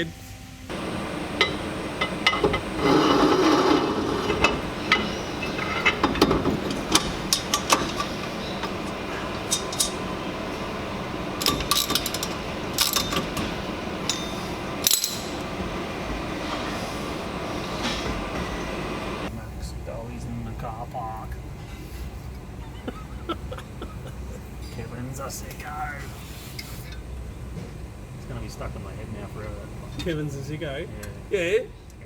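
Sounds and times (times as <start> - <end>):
metal hand tools clinking: 0.8 - 15.6.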